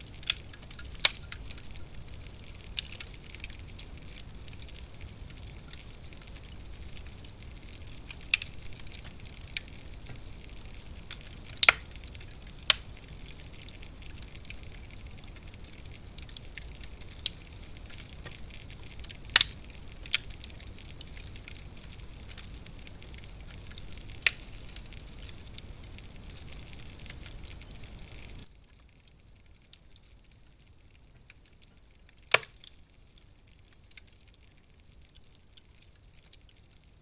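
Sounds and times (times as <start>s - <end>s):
sharp fire pops: 0.0s - 28.5s, 32.2s - 32.9s
fine fire crackle hiss: 0.0s - 37.0s.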